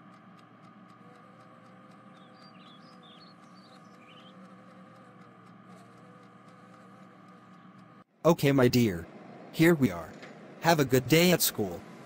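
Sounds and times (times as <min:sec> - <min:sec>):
faint background hum: 0:00.0 - 0:12.0
high bird chirps: 0:02.1 - 0:04.4.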